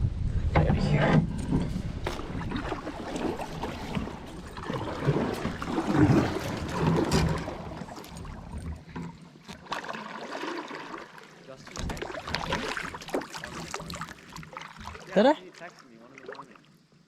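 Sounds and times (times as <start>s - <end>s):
wind rumbling on microphone: 0.0s - 9.0s
water sloshing around kayak: 0.6s - 17.0s.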